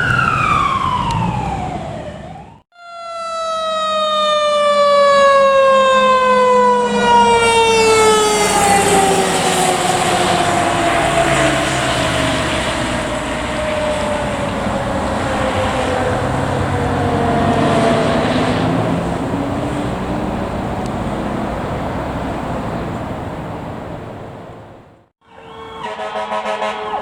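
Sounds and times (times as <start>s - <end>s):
siren sliding down in pitch: 0.0s - 19.8s, 25.2s - 27.0s
fire truck engine and road noise: 0.0s - 27.0s.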